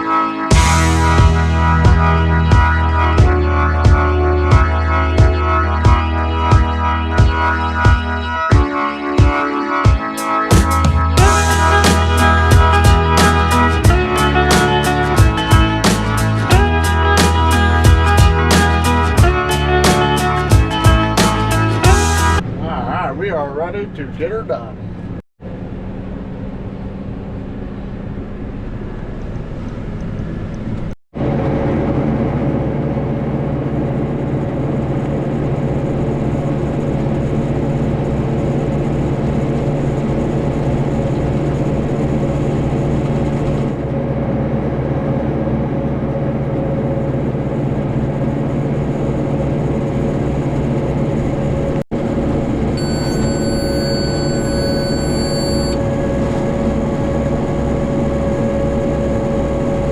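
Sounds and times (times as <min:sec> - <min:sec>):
tractor engine running: 0:24.7 - 0:53.3.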